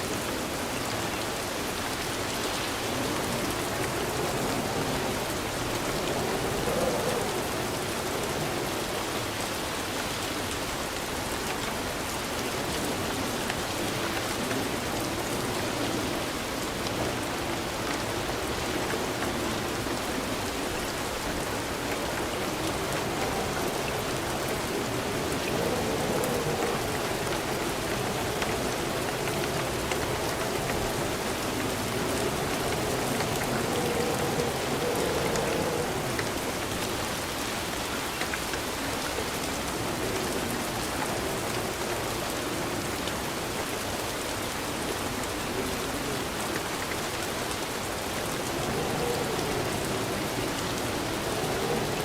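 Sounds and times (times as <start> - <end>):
rain pattering on surfaces: 0.0 - 52.0.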